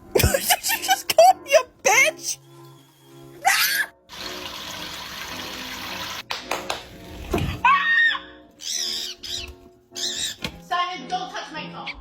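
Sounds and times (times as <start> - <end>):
background music: 0.0 - 12.0
water running from a tap: 4.1 - 6.2
squawk-like calls: 8.6 - 10.4.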